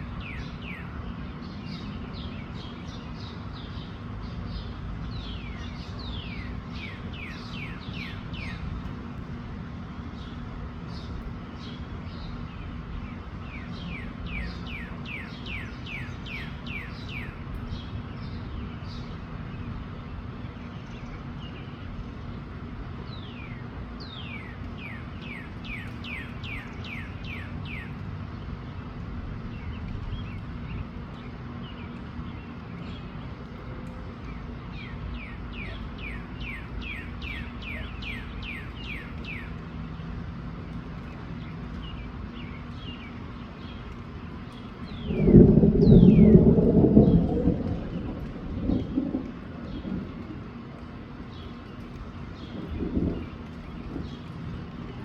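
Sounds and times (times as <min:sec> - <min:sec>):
songbird singing: 0:00.0 - 0:08.8, 0:10.0 - 0:22.4, 0:29.4 - 0:55.0
wind rumbling on microphone: 0:43.4 - 0:55.0.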